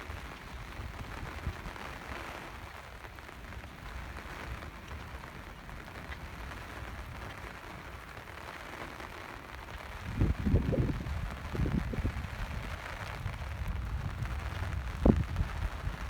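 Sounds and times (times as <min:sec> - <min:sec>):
rain falling: 0:00.0 - 0:16.0
wind buffeting microphone: 0:09.8 - 0:16.0.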